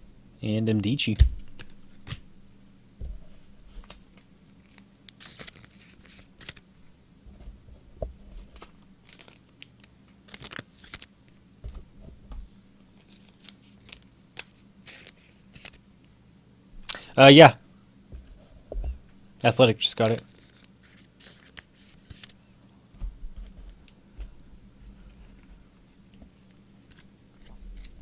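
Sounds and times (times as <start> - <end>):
cards being handled: 3.1 - 6.6, 8.4 - 11.1, 13.0 - 15.8, 19.9 - 22.4, 26.8 - 28.0
foil wrappers crinkling and tearing: 4.6 - 6.6, 8.6 - 11.1, 19.9 - 22.4.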